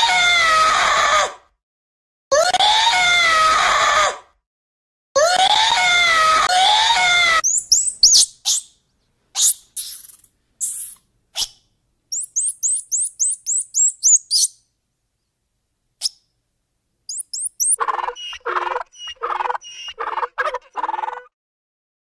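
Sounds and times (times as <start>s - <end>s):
high falling chirps: 7.4s - 8.7s, 12.1s - 14.6s, 17.1s - 20.2s
lower repeated animal calls: 17.1s - 21.4s.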